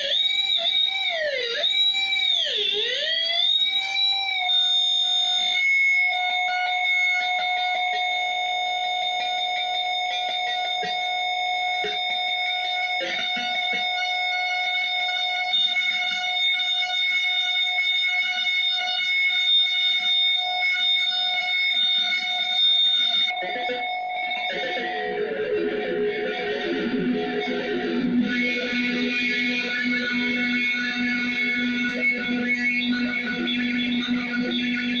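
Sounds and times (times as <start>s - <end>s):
electric guitar notes: 0.0s - 35.0s
high-pitched feedback drone: 14.4s - 35.0s.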